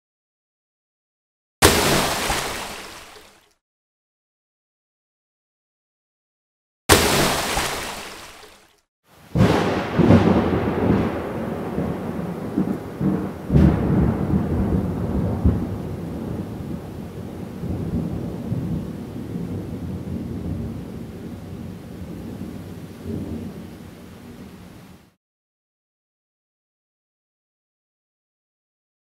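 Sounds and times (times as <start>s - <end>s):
loud crash: 1.6s - 3.1s, 6.9s - 8.3s
sharp crack: 1.6s - 3.4s, 6.9s - 8.6s.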